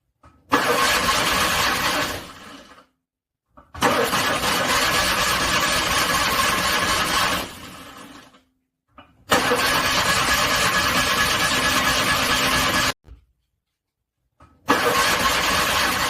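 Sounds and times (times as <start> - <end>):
car starter cranking engine: 0.5 - 2.7, 3.8 - 8.0, 9.3 - 12.9, 14.7 - 16.0.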